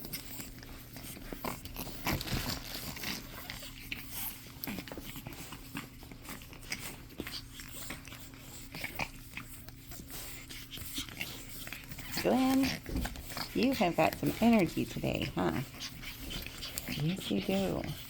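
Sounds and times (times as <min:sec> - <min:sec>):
puppies playing and biting: 0:00.0 - 0:18.0.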